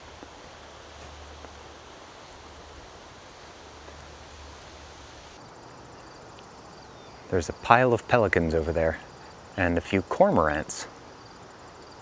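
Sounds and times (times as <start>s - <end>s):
wind hiss: 0.0s - 5.7s.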